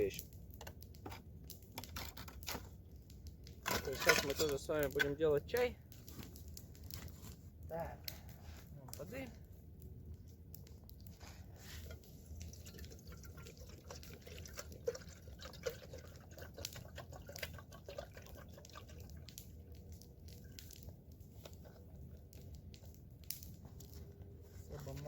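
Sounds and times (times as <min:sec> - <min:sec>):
water pouring into kettle: 0:11.9 - 0:19.3
water gurgling: 0:12.4 - 0:19.4.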